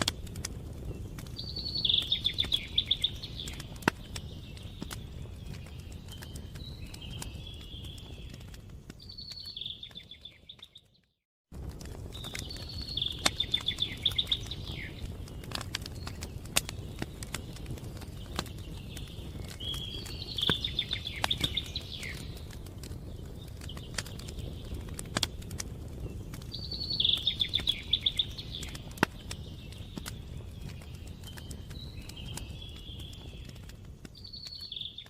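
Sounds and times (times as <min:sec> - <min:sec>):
wood fire crackling: 0:00.0 - 0:35.0
songbird trilling: 0:01.4 - 0:03.8, 0:12.5 - 0:15.0, 0:26.6 - 0:28.8.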